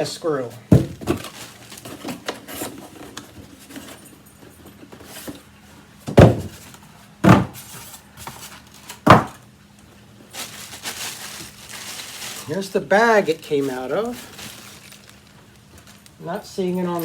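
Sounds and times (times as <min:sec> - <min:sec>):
heavy thuds: 0:06.1 - 0:06.6, 0:07.2 - 0:07.6.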